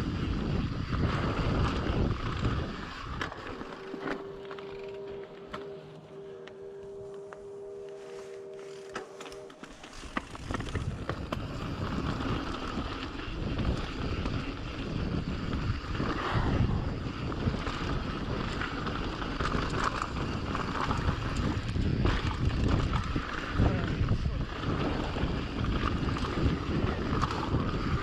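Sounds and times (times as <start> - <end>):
wind buffeting microphone: 0.0 - 5.5, 9.8 - 28.0
bike rattles and clicks: 0.0 - 7.4, 8.5 - 28.0
bike tyre noise: 0.0 - 28.0
faint steady tone: 3.3 - 12.4.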